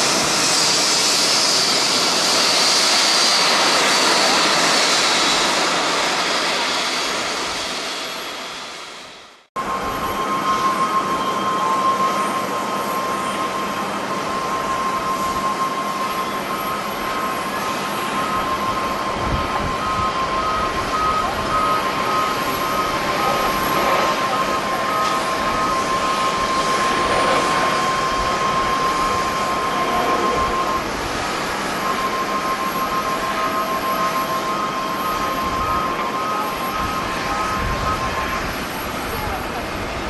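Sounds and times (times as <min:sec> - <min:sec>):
jet airliner whine and rush: 0:00.0 - 0:40.0.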